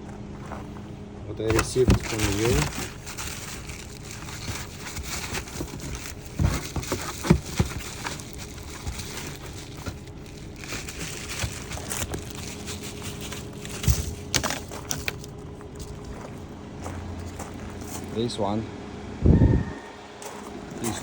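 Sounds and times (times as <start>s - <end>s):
plastic packaging rustling: 1.4s - 16.5s.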